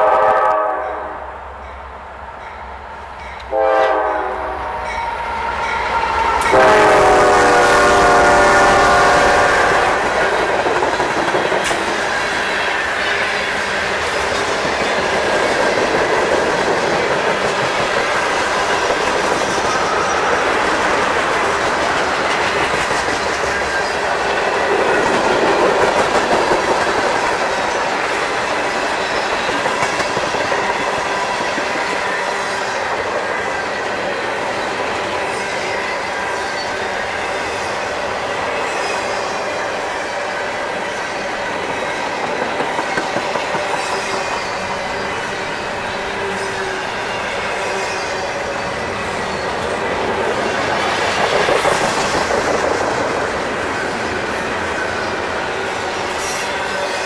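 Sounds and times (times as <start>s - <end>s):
locomotive air horn blasts: 0.0s - 1.4s, 3.5s - 10.0s
train rolling past: 0.0s - 57.0s.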